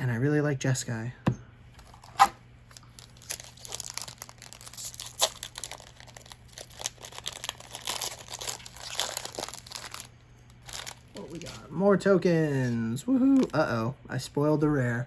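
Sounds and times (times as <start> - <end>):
plastic wrapper crinkling and tearing: 1.8 - 11.7, 12.6 - 13.6.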